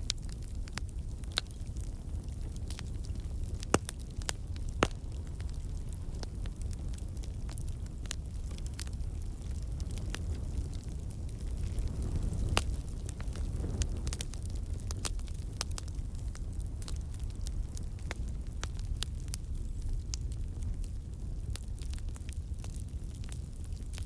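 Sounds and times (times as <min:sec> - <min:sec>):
wood campfire crackling: 0:00.0 - 0:24.0.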